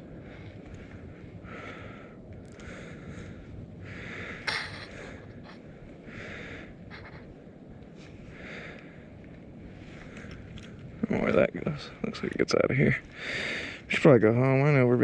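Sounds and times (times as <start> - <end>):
low background rumble: 0.0 - 11.0
person breathing hard: 0.1 - 9.2, 13.2 - 13.8.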